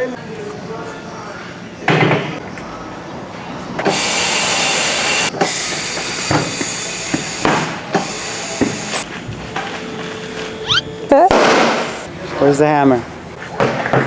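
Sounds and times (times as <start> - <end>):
compressed air hissing: 3.9 - 9.1.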